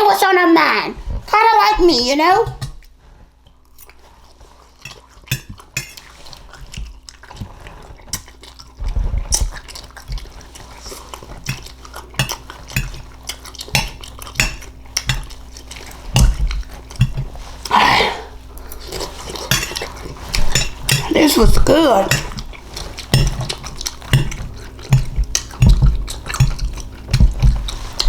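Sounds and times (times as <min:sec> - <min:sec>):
cutlery clinking against a dish: 0:04.8 - 0:06.1, 0:11.5 - 0:15.4, 0:19.4 - 0:21.2, 0:22.1 - 0:27.3.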